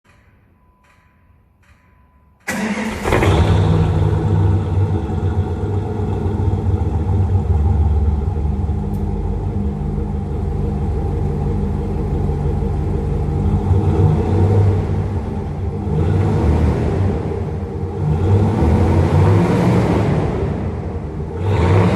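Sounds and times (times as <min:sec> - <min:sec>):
car engine idling: 0:02.4 - 0:21.9.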